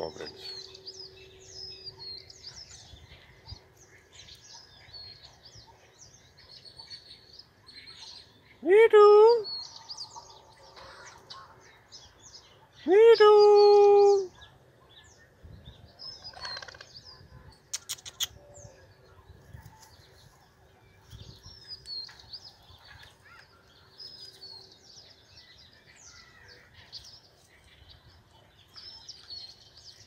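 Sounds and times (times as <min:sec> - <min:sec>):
birds chirping: 0:00.0 - 0:30.0
sharp clicks: 0:17.7 - 0:18.4.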